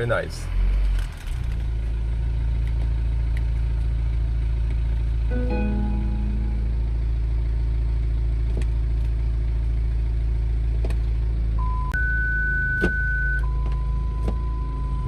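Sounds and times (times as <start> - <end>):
diesel engine idling: 1.9 - 11.8
parking sensor warning tone: 5.3 - 7.1, 11.6 - 15.0
short beep: 5.3 - 7.1.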